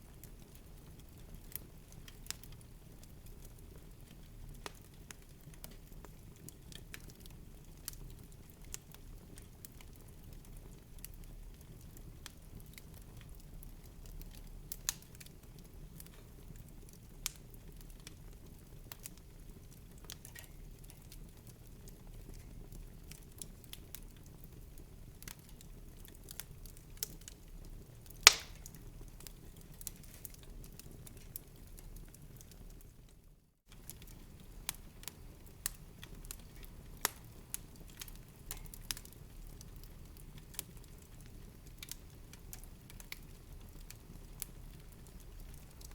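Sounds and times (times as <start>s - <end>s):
wood fire crackling: 0.0s - 45.9s
sharp pops of fire: 28.2s - 28.9s.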